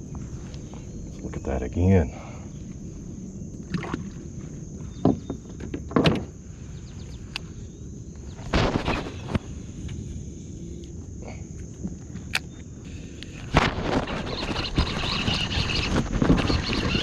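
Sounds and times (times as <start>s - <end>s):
high insect drone: 0.0s - 17.0s
knocks and splashes around kayak: 3.6s - 6.4s.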